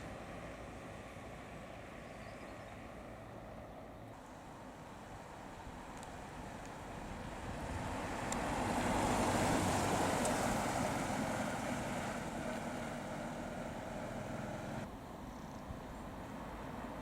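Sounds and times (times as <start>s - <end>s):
car driving past: 7.3s - 14.9s.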